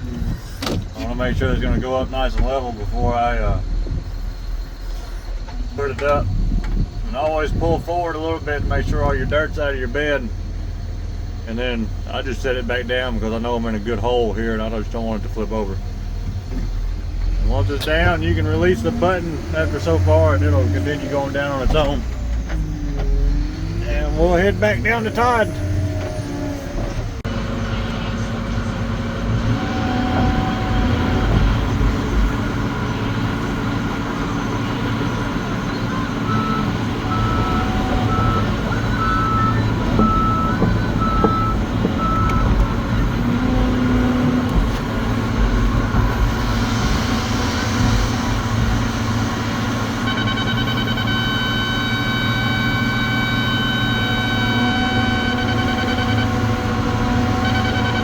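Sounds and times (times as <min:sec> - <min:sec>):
truck diesel engine running: 0:00.0 - 0:58.0
short beeps: 0:35.7 - 0:42.6, 0:50.0 - 0:56.4, 0:57.4 - 0:58.0.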